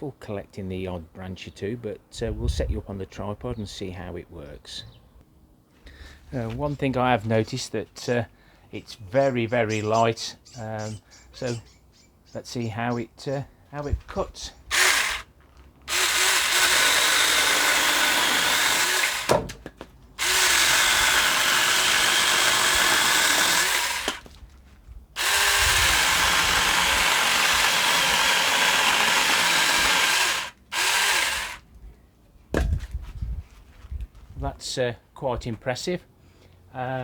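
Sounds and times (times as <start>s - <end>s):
electric chainsaw cutting branch: 14.7s - 15.3s, 15.9s - 19.5s, 20.2s - 24.3s, 25.2s - 31.6s.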